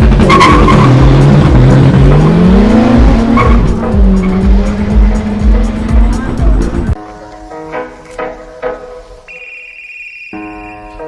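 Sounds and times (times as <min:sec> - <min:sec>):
car engine revving: 0:00.0 - 0:07.0
music with heavy beat: 0:00.0 - 0:07.0
tyres squealing: 0:00.1 - 0:04.7.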